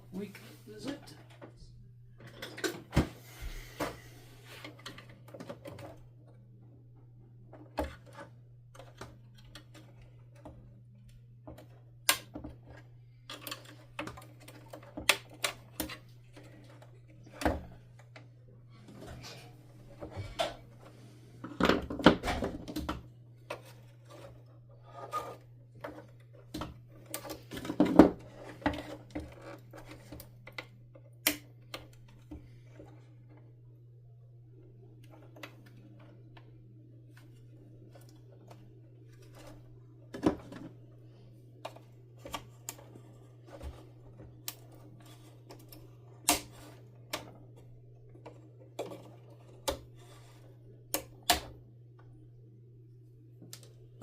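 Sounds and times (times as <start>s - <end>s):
plastic parts clicking and clacking: 7.5s - 18.3s, 21.5s - 33.4s, 35.0s - 51.6s.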